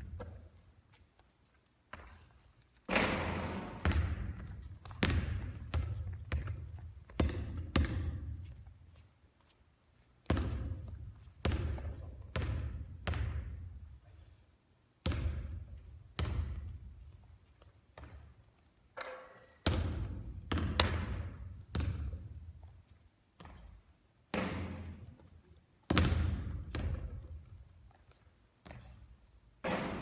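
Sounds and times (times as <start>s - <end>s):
basketball bouncing on court floor: 1.9s - 2.2s, 2.9s - 8.6s, 10.2s - 13.7s, 15.0s - 16.9s, 18.0s - 18.4s, 19.0s - 22.6s, 23.4s - 25.2s, 25.9s - 30.0s.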